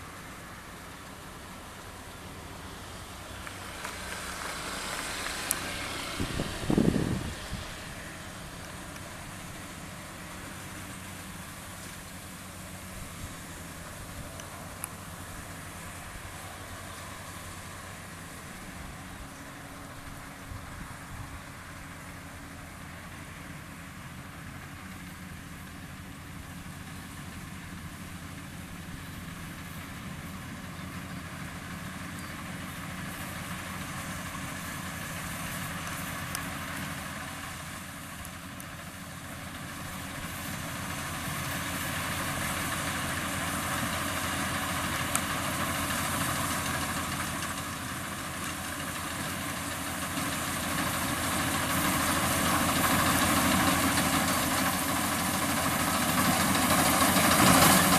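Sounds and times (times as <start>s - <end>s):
combine harvester diesel engine: 0.0s - 57.9s.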